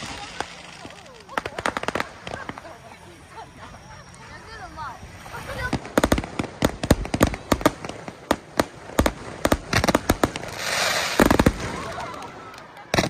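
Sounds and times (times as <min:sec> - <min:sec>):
fireworks bangs and pops: 0:00.0 - 0:02.8, 0:05.6 - 0:13.0
fireworks crackling: 0:00.0 - 0:13.0.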